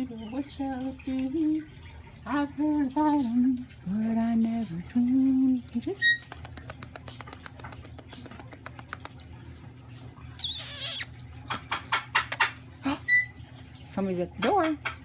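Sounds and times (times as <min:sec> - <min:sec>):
parrot beak tapping: 0:06.2 - 0:09.3
parrot squawk: 0:10.4 - 0:11.1.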